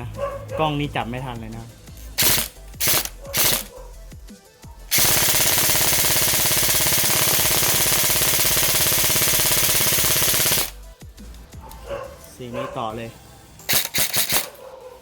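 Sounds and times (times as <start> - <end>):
airsoft gun rapid fire: 2.2 - 3.7, 4.9 - 10.9, 13.7 - 14.6.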